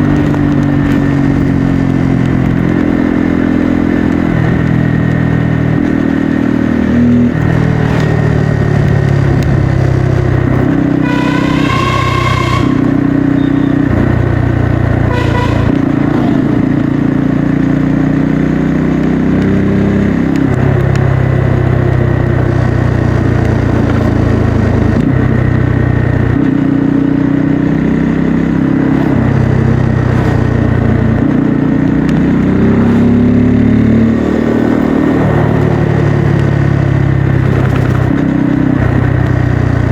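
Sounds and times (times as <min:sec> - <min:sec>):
motorcycle engine: 0:00.0 - 0:39.9
vehicle horn: 0:10.8 - 0:17.2.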